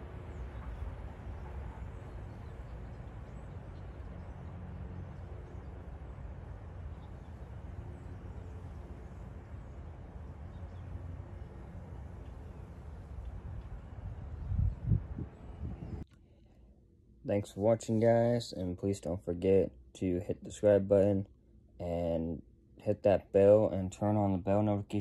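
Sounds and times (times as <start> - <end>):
distant freight train rumble: 0.0 - 15.8.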